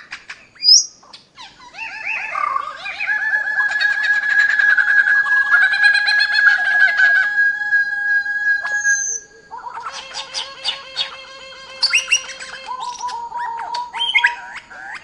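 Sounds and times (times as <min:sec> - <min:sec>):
birds chirping: 0:00.0 - 0:15.0
steady high tone: 0:02.3 - 0:14.2.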